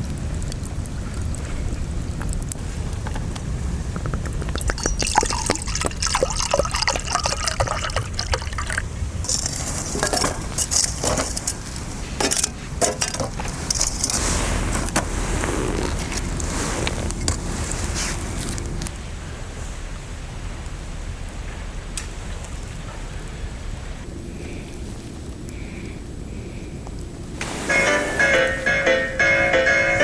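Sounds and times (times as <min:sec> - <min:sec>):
liquid pouring and sloshing: 0:04.4 - 0:12.3
cookware clinking: 0:04.6 - 0:11.5.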